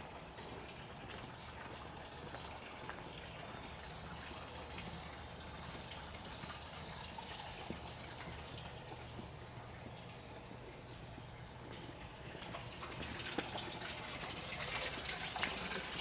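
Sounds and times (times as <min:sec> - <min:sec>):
footsteps on pavement: 0:07.6 - 0:14.0.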